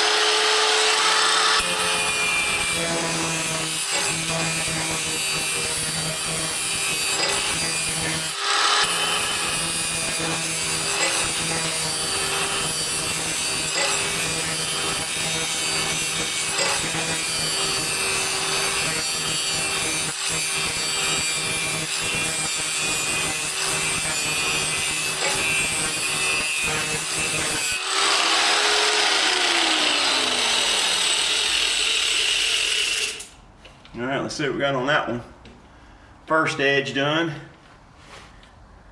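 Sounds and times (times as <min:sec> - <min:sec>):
angle grinder grinding steel: 0:00.0 - 0:33.4.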